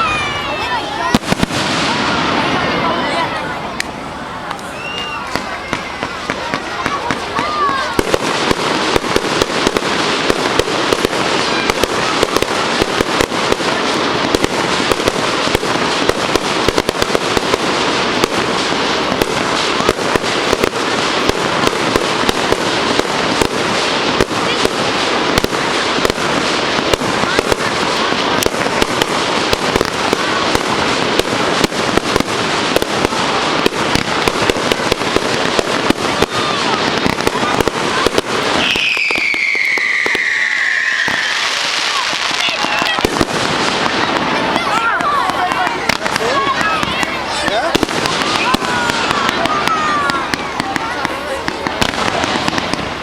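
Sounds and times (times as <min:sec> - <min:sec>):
fireworks bangs and crackling: 0:00.0 - 0:53.0.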